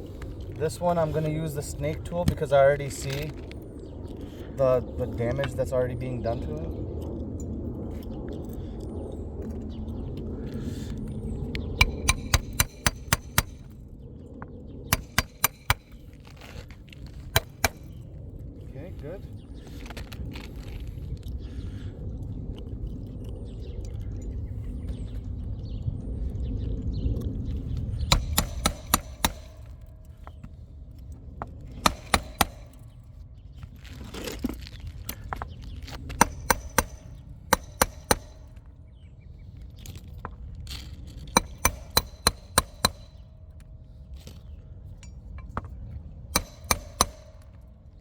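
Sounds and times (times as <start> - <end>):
hammer blows with metallic ring: 11.8 - 13.7, 14.9 - 16.0, 17.4 - 18.0, 28.1 - 30.4, 31.8 - 33.0, 36.2 - 38.7, 41.4 - 43.4, 46.4 - 47.7.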